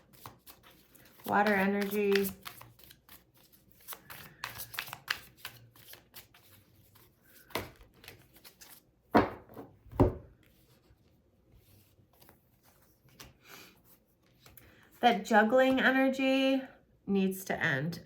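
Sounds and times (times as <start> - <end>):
cards rustling: 0.0 - 8.9
cards slapping on a table: 7.4 - 8.2.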